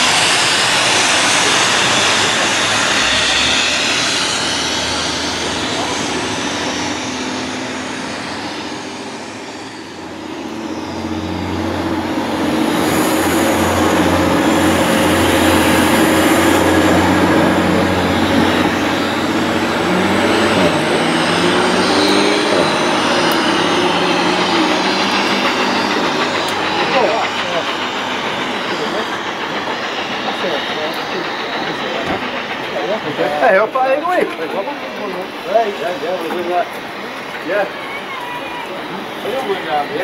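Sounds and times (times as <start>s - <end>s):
train wheels rumbling on rails: 0.0s - 40.0s
wavering whining tones: 0.0s - 40.0s.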